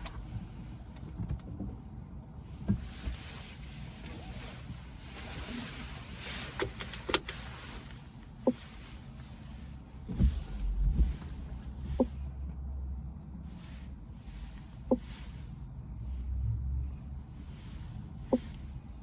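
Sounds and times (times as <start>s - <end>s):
low rumble: 10.1s - 19.0s.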